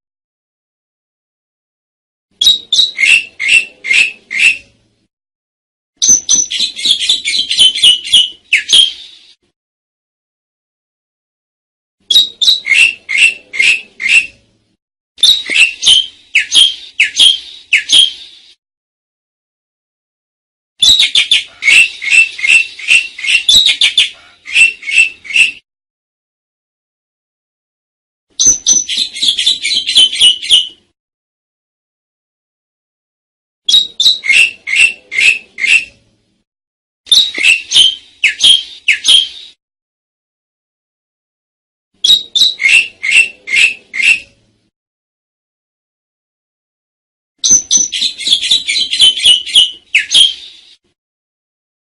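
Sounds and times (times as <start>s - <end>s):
starling harsh calls: 2.4s - 4.7s, 12.1s - 14.3s, 15.2s - 18.3s, 20.8s - 25.6s, 33.7s - 35.9s, 37.1s - 39.6s, 42.0s - 44.2s, 47.5s - 50.7s.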